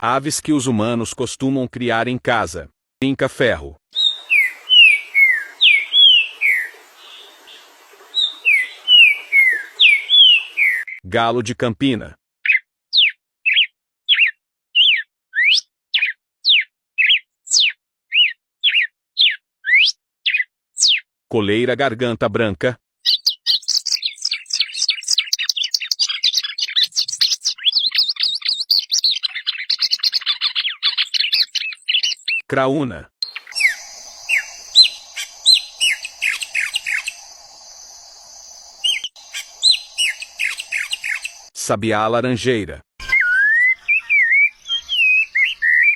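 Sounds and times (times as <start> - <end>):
bird whistling song: 4.0 - 11.0, 12.5 - 21.0, 23.0 - 32.4, 33.2 - 41.5, 43.0 - 45.9.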